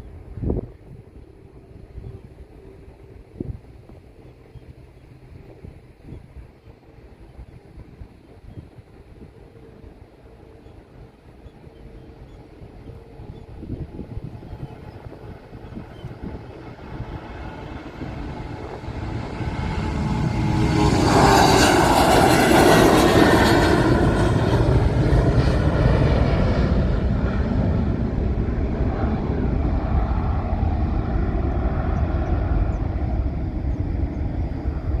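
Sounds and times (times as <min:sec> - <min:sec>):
jet engines roaring: 0:09.0 - 0:35.0.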